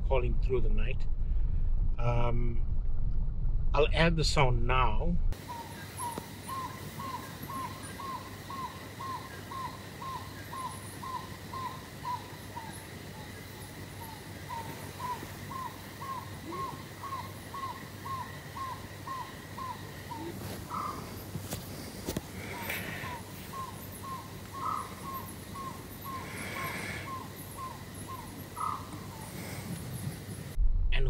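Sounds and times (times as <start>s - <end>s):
night bird calling short notes: 5.4s - 13.4s, 14.0s - 21.6s, 22.4s - 30.1s.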